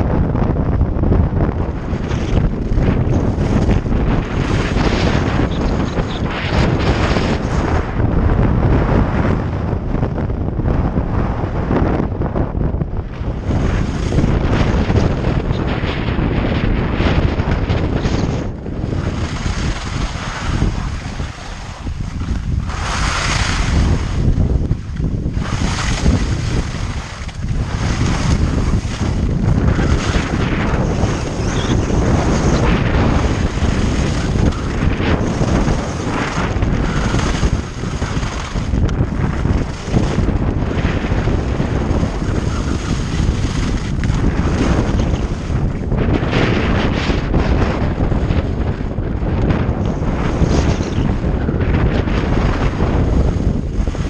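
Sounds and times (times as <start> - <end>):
wind rushing over microphone: 0.0 - 54.0
skis scraping over snow: 17.6 - 24.5, 25.3 - 45.6.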